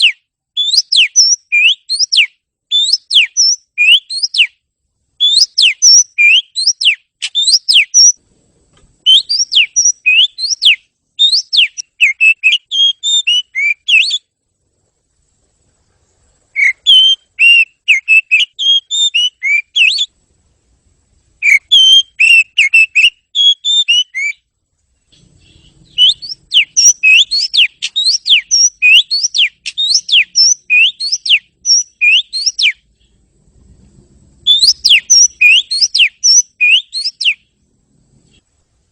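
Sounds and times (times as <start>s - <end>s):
bird singing whistled notes: 0.0s - 4.6s, 5.2s - 8.2s, 9.0s - 14.3s, 16.5s - 20.2s, 21.4s - 24.5s, 25.2s - 33.1s, 34.4s - 37.5s.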